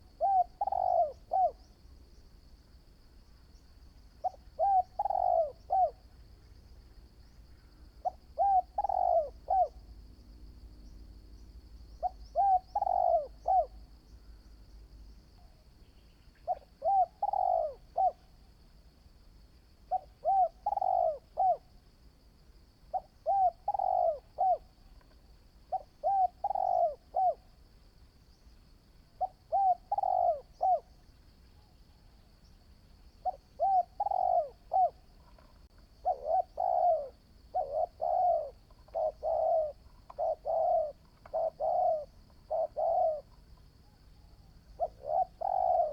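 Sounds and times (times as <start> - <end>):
dove cooing: 0.0 - 1.8, 4.2 - 6.2, 7.5 - 9.9, 11.9 - 14.0, 16.4 - 18.4, 19.8 - 21.8, 22.9 - 27.6, 29.1 - 31.7, 33.1 - 45.9.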